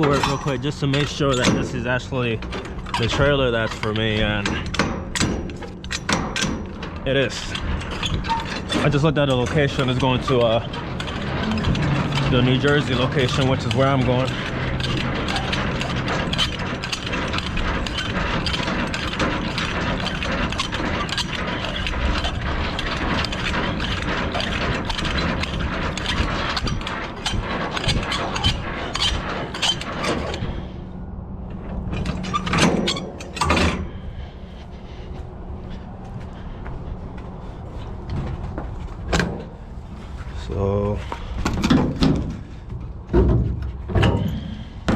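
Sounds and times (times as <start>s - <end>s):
loud metal knocks: 0.0s - 30.6s
steady low hum: 0.0s - 44.9s
hand crank gears clicking: 2.3s - 30.4s.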